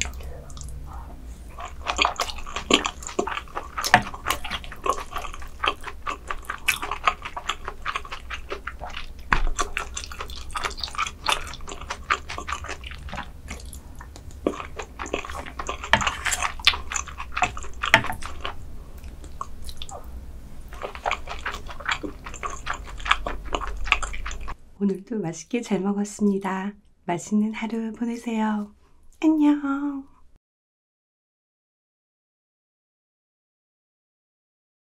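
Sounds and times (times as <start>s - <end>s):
chewing rice: 0.0s - 24.6s
wet mouth clicks and smacks: 5.7s - 20.0s.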